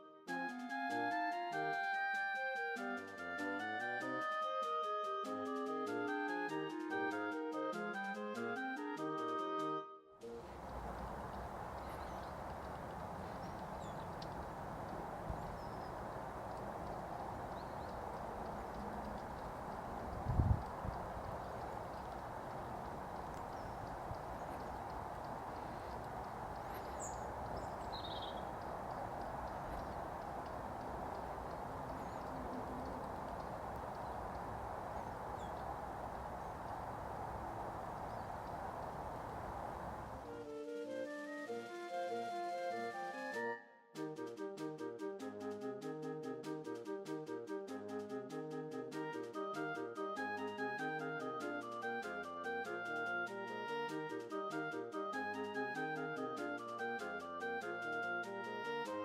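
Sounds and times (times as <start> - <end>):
music: 0.0 - 14.4, 40.2 - 59.0
outdoor background hiss: 0.0 - 59.0
steady rushing noise: 10.3 - 40.7
faint bird chirps: 10.4 - 40.2.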